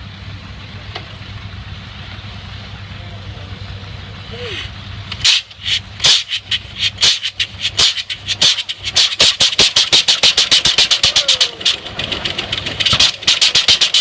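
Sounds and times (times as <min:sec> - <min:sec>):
tractor engine exhaust cracks: 0:04.4 - 0:14.0.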